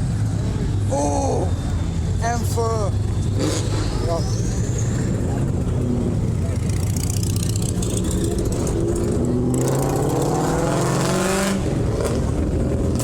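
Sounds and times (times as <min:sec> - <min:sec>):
car engine accelerating: 0:05.2 - 0:13.0.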